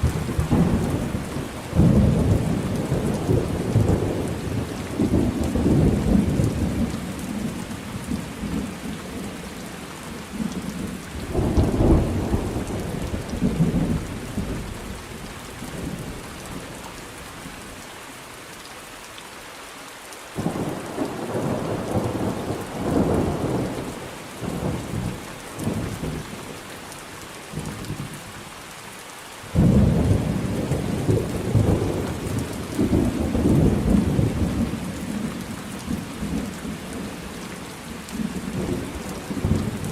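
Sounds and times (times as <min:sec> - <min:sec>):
low rolling thunder: 0:00.0 - 0:07.5, 0:10.3 - 0:14.7, 0:20.4 - 0:26.3, 0:29.6 - 0:37.1, 0:38.2 - 0:39.9
steady rain falling: 0:00.0 - 0:39.9.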